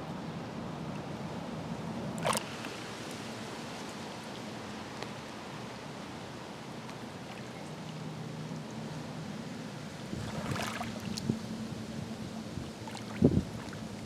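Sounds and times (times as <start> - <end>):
low steady hum: 0.0 - 14.0
waves lapping on rocky shore: 2.2 - 7.3, 9.8 - 14.0.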